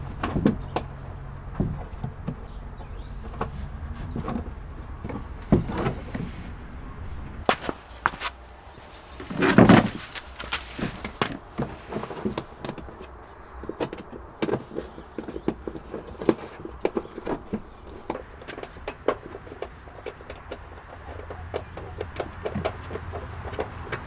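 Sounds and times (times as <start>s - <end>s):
low steady hum: 0.0s - 11.3s.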